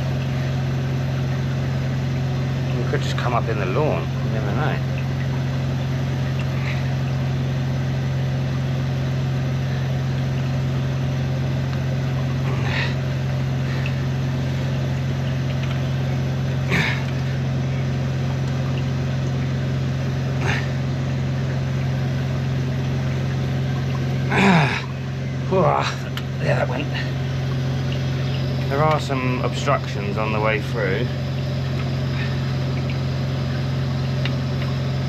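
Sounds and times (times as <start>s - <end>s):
engine and pump running: 0.0s - 35.0s.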